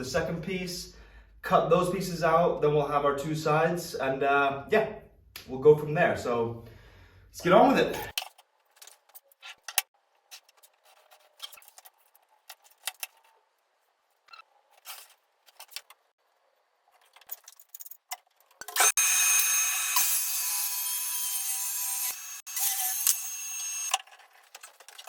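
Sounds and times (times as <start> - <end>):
tools and wood clicking: 8.1 - 13.4, 16.9 - 18.9, 22.6 - 25.0
power saw cutting wood: 18.8 - 24.0.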